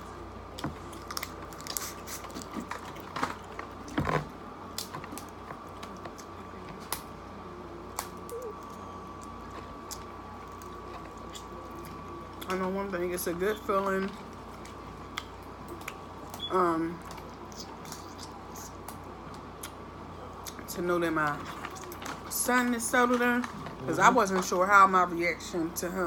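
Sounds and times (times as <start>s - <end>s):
faint hum: 0.0s - 26.0s
person chewing: 0.6s - 4.0s, 8.0s - 12.5s.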